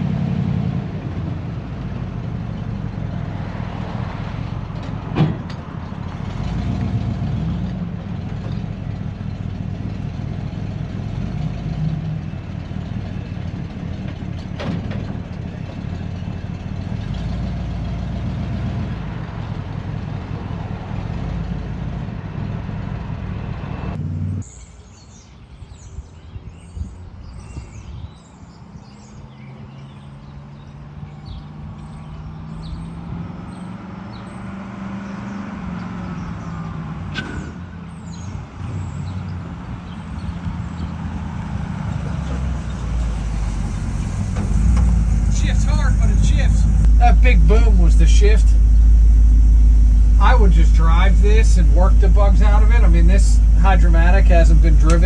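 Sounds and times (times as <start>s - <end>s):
truck engine rumbling: 0.0s - 24.4s, 35.5s - 55.0s.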